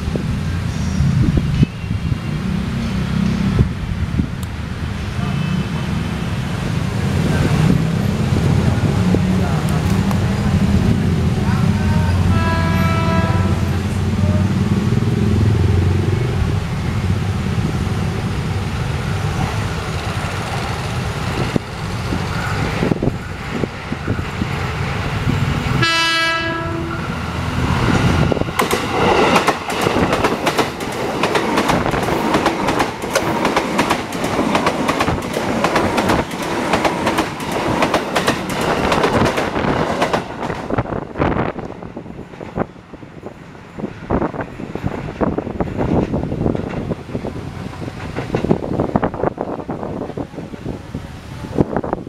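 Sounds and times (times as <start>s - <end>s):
electric train rumbling: 0.0s - 52.0s
train horn: 11.6s - 14.6s, 25.8s - 27.2s
train wheels clattering over rail joints: 28.0s - 42.7s, 44.6s - 50.7s.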